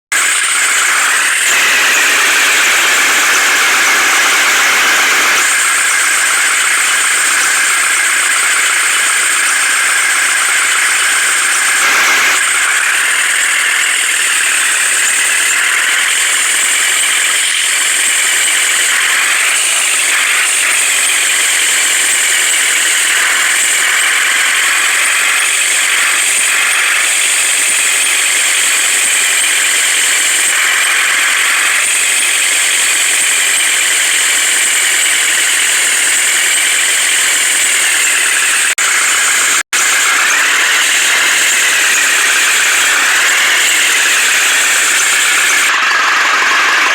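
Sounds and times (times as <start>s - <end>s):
high machine whine: 0.0s - 46.9s
heavy vehicle engine running: 0.1s - 25.3s.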